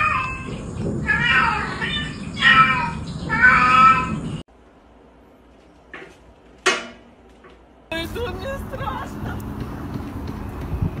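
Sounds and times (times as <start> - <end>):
cat meowing: 0.0 - 4.2.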